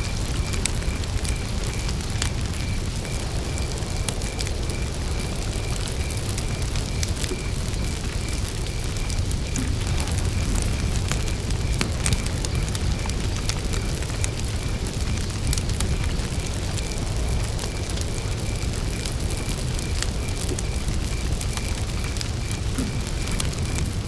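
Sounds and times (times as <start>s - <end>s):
campfire crackling and popping: 0.0s - 24.0s
cricket chirping: 0.0s - 24.0s
low fire rumble: 0.0s - 24.0s.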